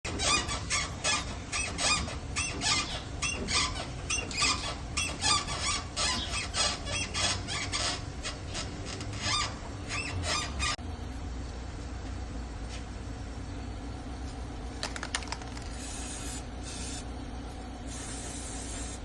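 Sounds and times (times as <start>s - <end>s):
car suspension squeaking: 0.1s - 10.8s.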